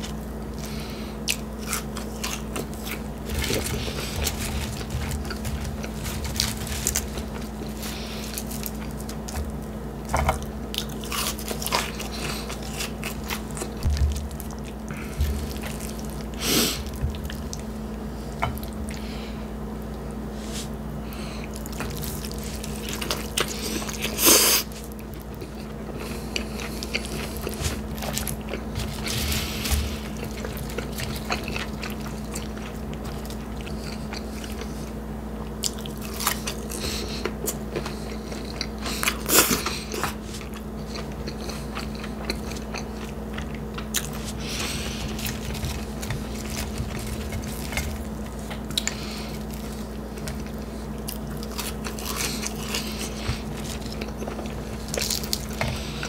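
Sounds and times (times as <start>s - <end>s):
chewing with wet clicks: 24.8s - 28.8s, 30.1s - 34.7s, 35.4s - 56.0s.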